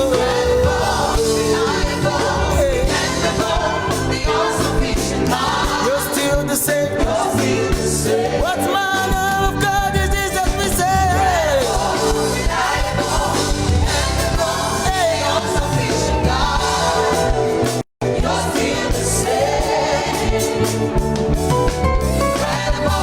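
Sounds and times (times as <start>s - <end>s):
gospel song with band: 0.0s - 23.0s.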